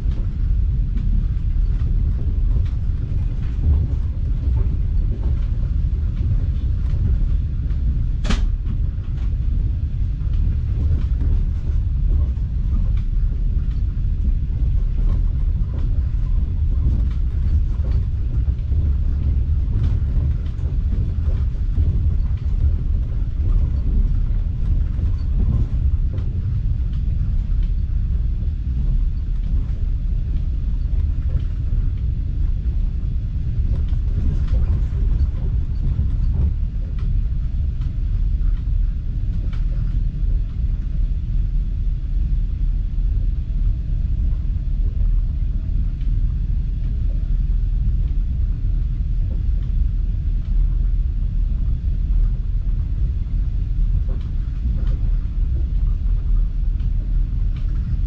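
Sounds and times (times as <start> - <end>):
train carriage rumble: 0.0 - 58.0.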